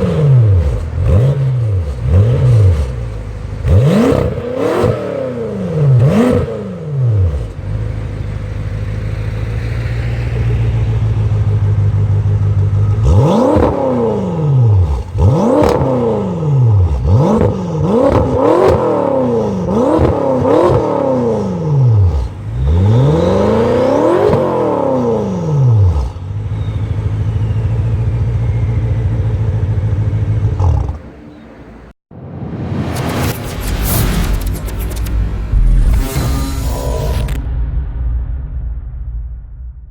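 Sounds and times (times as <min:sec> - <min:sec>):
car engine idling: 0:00.0 - 0:04.6, 0:07.3 - 0:15.4, 0:21.9 - 0:31.9
car engine revving: 0:00.0 - 0:31.9.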